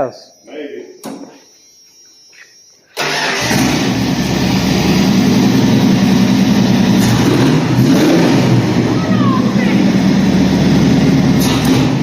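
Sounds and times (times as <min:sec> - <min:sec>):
truck engine starting and running: 0:02.9 - 0:12.0.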